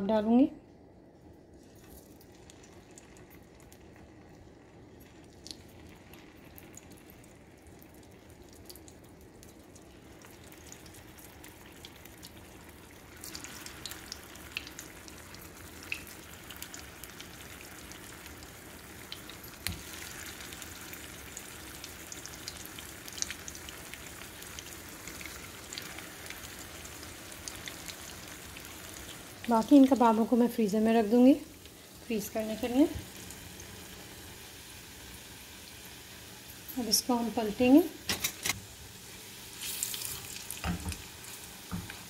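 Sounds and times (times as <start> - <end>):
food sizzling in oil: 9.9 - 42.0.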